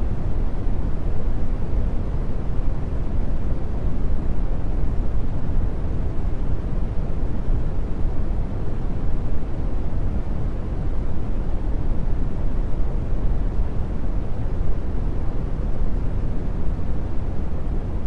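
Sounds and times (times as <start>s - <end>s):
brown noise hiss: 0.0s - 18.0s.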